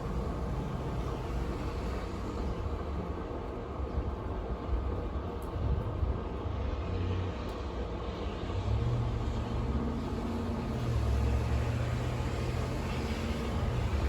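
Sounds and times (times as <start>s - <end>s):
snowstorm wind blowing: 9.4s - 14.0s.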